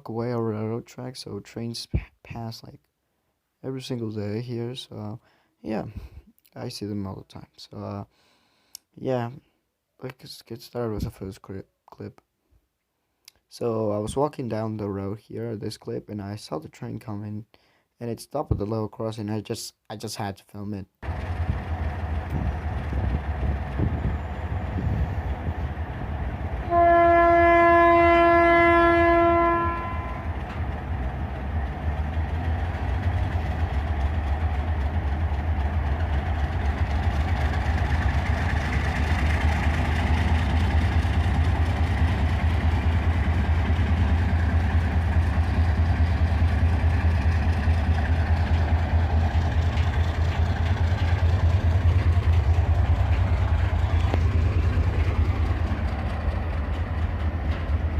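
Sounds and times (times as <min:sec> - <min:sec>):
locomotive engine rumbling: 0:21.0 - 0:57.9
locomotive horn: 0:26.6 - 0:30.4.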